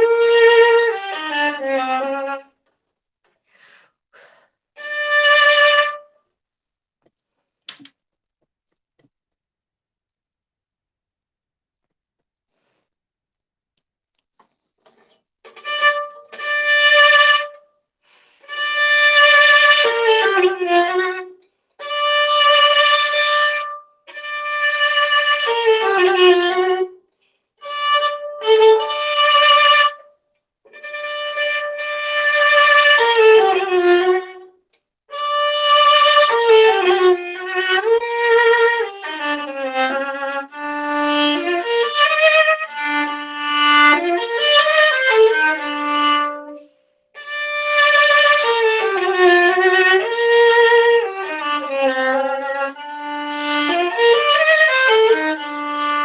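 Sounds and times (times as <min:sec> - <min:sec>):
bowed viola: 0:00.0 - 0:02.6, 0:04.2 - 0:06.2, 0:15.5 - 0:27.0, 0:27.6 - 0:56.0.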